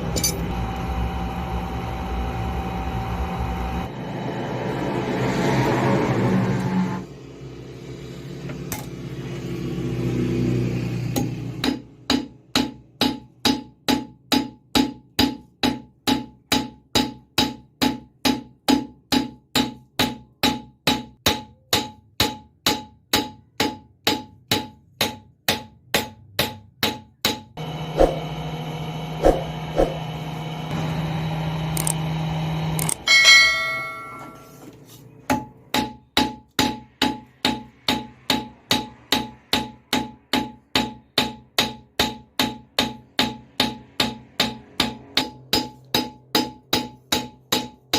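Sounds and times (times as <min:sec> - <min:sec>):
hammer striking metal on anvil: 0:00.0 - 0:00.5, 0:11.2 - 0:28.2, 0:32.8 - 0:34.6, 0:35.3 - 0:47.9
metal clanks: 0:00.1 - 0:00.5
steady low hum: 0:27.6 - 0:34.2.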